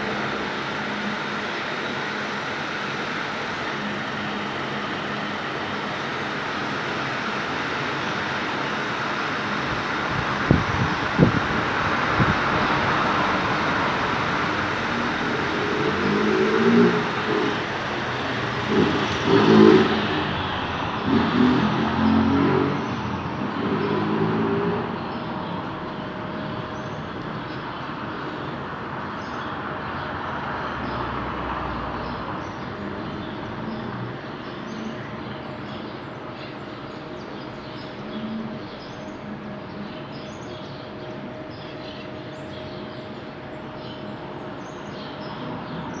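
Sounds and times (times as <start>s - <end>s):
fan air rush: 0.0s - 21.1s.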